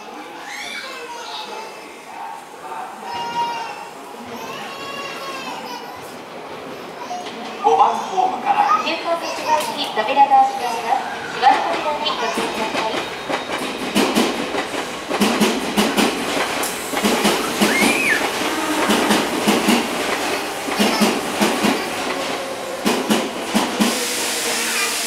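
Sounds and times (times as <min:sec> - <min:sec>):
electric train pulling out: 0:11.2 - 0:25.0
train wheels clacking over rail joints: 0:11.4 - 0:24.6.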